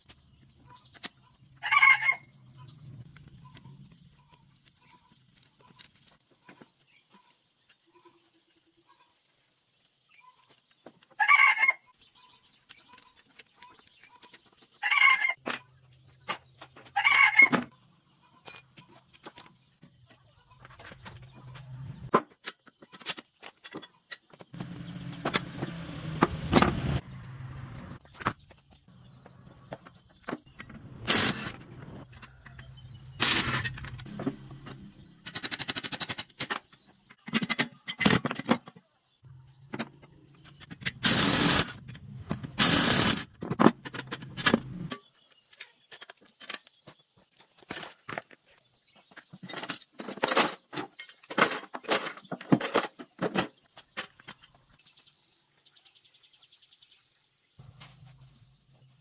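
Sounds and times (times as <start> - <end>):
metal tools clinking and knocking: 15.4 - 16.8, 18.3 - 25.7, 39.7 - 54.6.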